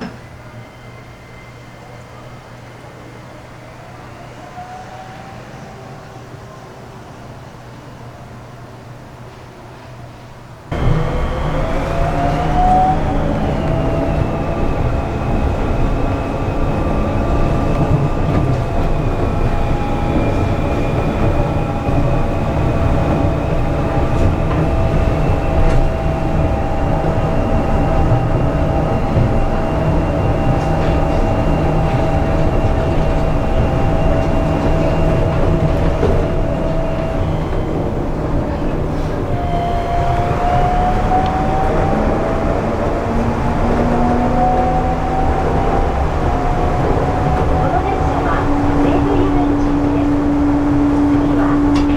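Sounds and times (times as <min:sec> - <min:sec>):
train running rumble: 0:10.6 - 0:51.9.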